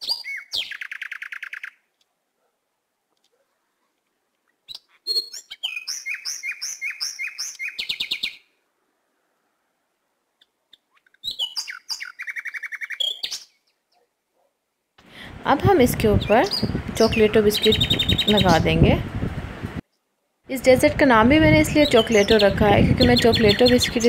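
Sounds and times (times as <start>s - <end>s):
bird chirping and trilling: 0.0s - 1.9s, 4.6s - 8.6s, 10.4s - 14.1s, 16.0s - 18.8s, 21.5s - 24.0s.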